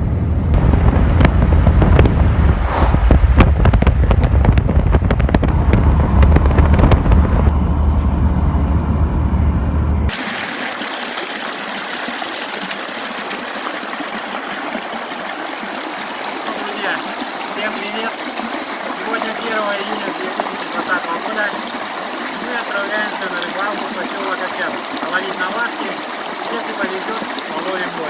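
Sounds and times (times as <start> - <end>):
low vehicle rumble: 0.0 - 10.1.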